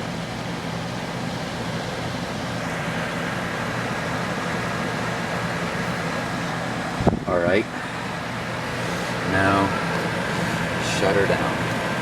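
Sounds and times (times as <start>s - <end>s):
air conditioner running: 0.0s - 12.0s.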